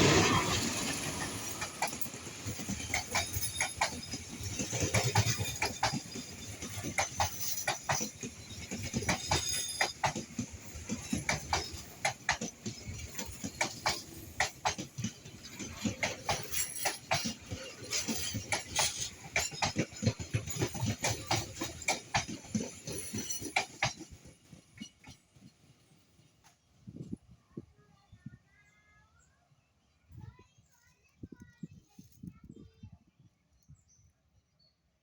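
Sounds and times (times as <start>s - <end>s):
train wheels clacking over joints: 0.0s - 26.6s
train rumble: 0.0s - 28.4s.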